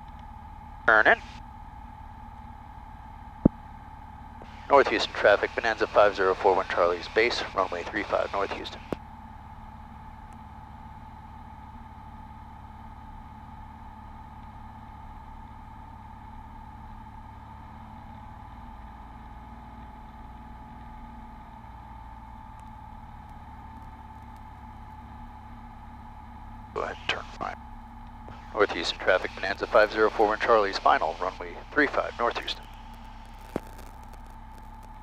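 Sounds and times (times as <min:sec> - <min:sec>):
propeller plane engine droning: 0:00.0 - 0:35.0
high whine: 0:04.4 - 0:09.0, 0:28.3 - 0:35.0.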